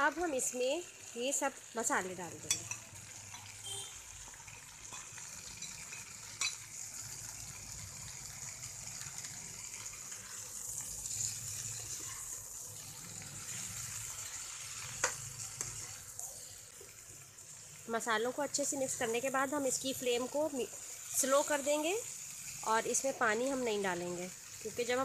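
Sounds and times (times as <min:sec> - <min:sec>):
vegetables sizzling in hot oil: 0:00.0 - 0:25.0
metal spoon clacking against pan: 0:02.4 - 0:03.5, 0:04.9 - 0:06.6.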